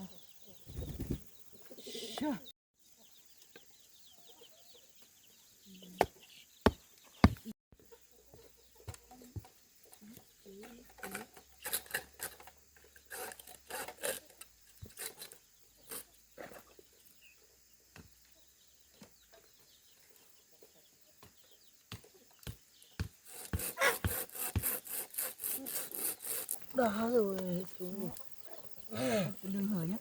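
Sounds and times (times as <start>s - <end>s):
knocks on bamboo: 6.7s - 7.5s
hand tool scraping bamboo: 10.9s - 16.1s, 23.2s - 26.7s.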